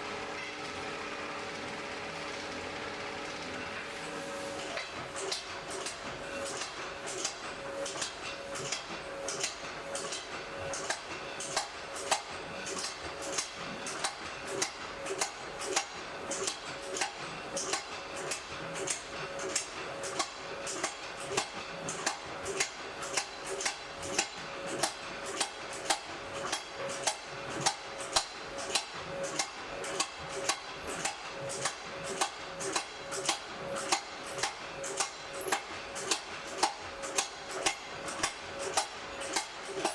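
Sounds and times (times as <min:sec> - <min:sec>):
steady ringing tone: 0:04.0 - 0:15.0.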